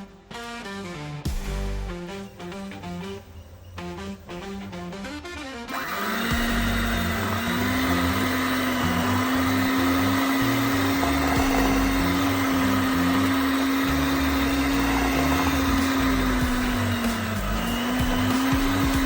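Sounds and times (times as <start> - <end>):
electric mixer beating batter: 5.7 - 19.0.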